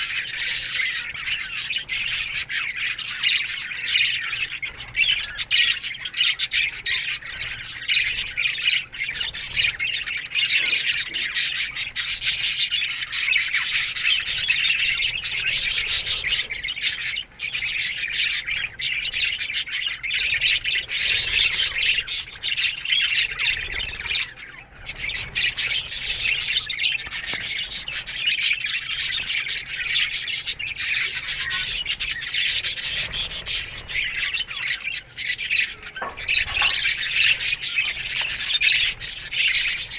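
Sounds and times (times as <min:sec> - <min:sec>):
bird squawks: 0:00.0 - 0:39.9
budgerigars chirping and chattering: 0:00.0 - 0:39.9.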